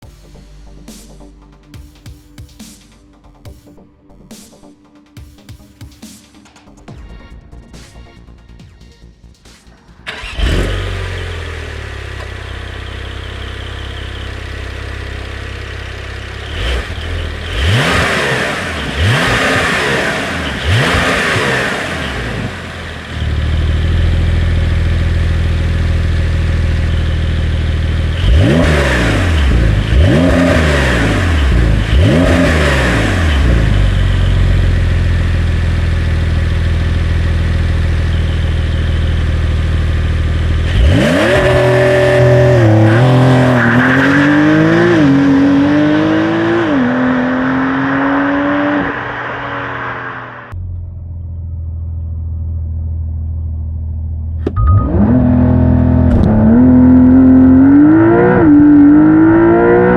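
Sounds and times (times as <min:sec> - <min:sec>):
car engine idling and revving: 0:09.6 - 0:59.9.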